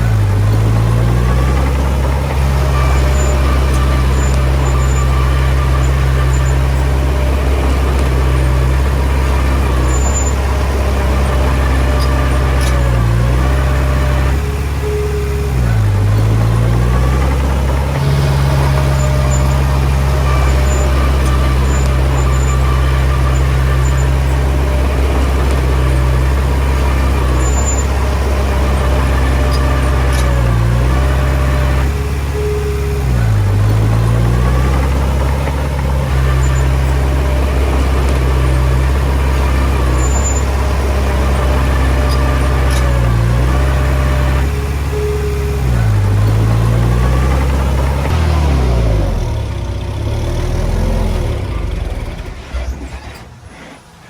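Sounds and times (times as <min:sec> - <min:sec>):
diesel engine running under load: 0:00.0 - 0:54.0.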